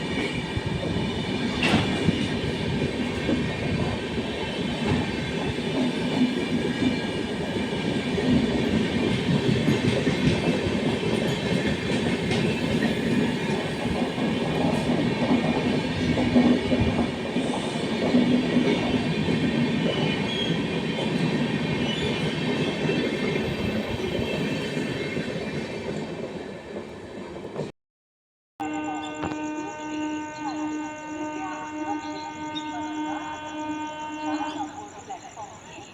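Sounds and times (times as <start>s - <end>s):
train wheels rumbling on rails: 0.0s - 27.7s.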